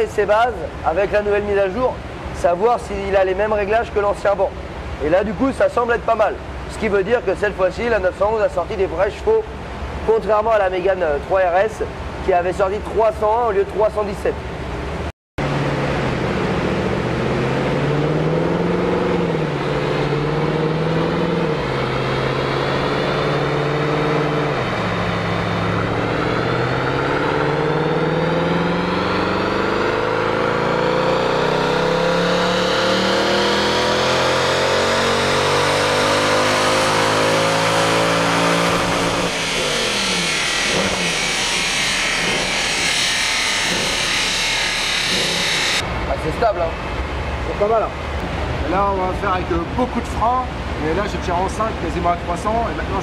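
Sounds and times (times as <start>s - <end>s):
car engine revving on dyno: 15.4s - 45.8s.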